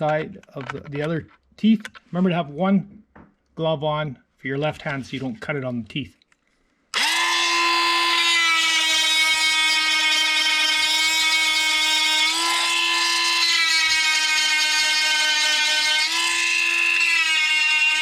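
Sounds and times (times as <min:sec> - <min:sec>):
chainsaw sharpener whining: 0:06.9 - 0:18.0.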